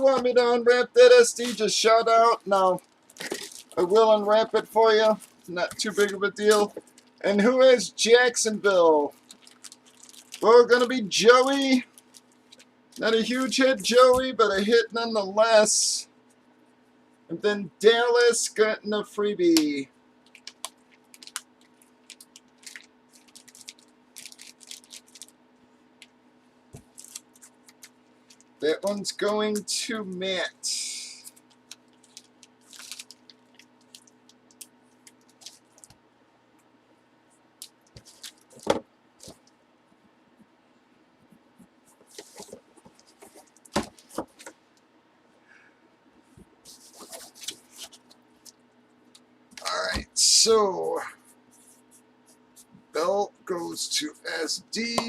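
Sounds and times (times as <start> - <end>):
low steady hum: 0.0 - 55.0
cards and packaging rustling: 1.1 - 7.2, 9.0 - 14.4, 19.7 - 25.4, 26.8 - 29.6, 31.3 - 36.0, 37.6 - 39.5, 41.9 - 44.5, 46.7 - 48.5
trading cards clicking and rustling: 1.4 - 7.1.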